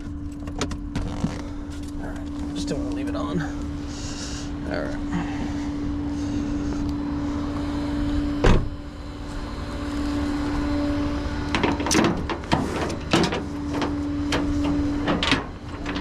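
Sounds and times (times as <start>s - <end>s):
steady hum: 0.0s - 16.0s
car door thud: 8.4s - 8.8s
metallic clanks and clicks: 11.5s - 16.0s.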